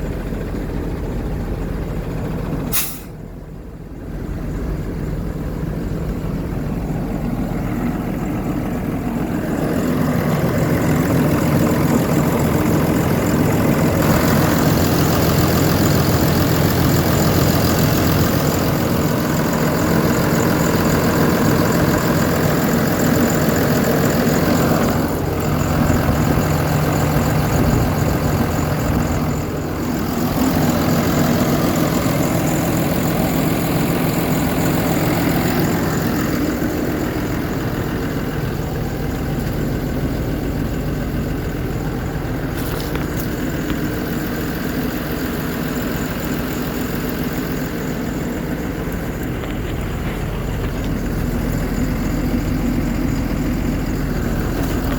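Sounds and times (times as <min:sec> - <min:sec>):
truck diesel engine running: 0:00.0 - 0:54.9.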